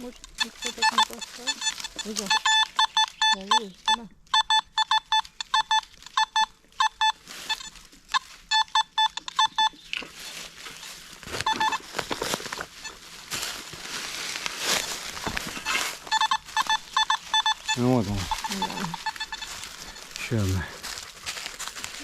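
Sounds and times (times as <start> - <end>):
leaf litter and soil rustling: 0.0 - 3.9, 7.1 - 8.6, 9.8 - 22.0
metal detector beeps: 0.0 - 13.1, 14.4 - 22.0.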